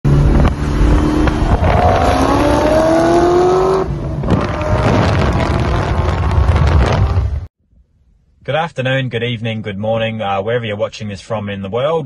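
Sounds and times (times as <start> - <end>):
car engine accelerating hard: 0.1 - 7.3.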